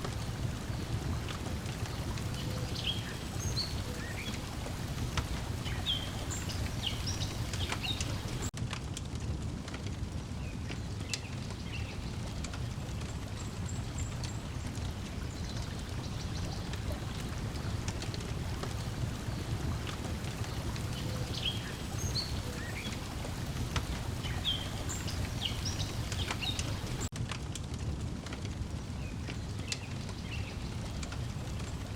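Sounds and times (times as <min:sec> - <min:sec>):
birds chirping: 0:00.0 - 0:08.5, 0:11.0 - 0:27.1
water lapping: 0:00.0 - 0:08.5, 0:11.8 - 0:27.1
wood fire crackling: 0:00.0 - 0:31.9.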